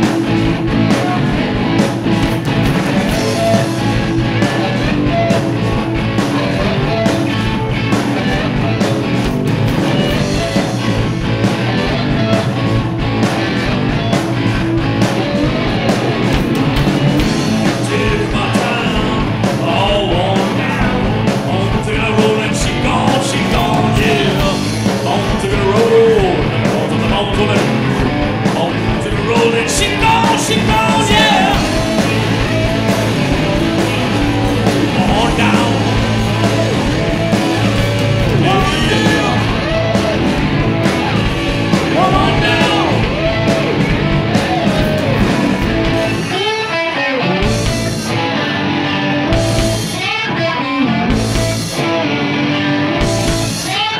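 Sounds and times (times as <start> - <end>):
live rock band playing: 0.0 - 53.9
person singing: 17.6 - 32.0, 34.8 - 36.6, 38.2 - 40.1, 41.9 - 43.6.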